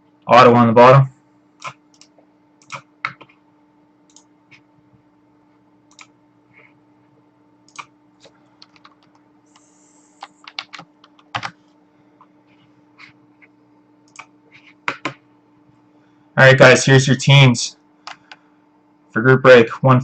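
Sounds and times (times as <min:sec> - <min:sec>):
faint steady hum: 0:00.0 - 0:20.0
keyboard keystrokes: 0:08.6 - 0:09.2, 0:10.2 - 0:11.6.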